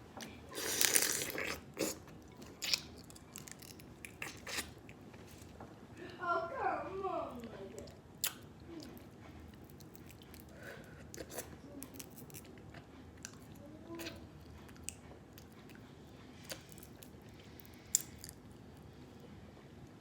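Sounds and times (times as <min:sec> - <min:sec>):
chewing and sucking crab meat: 0:00.2 - 0:05.4, 0:08.2 - 0:18.9.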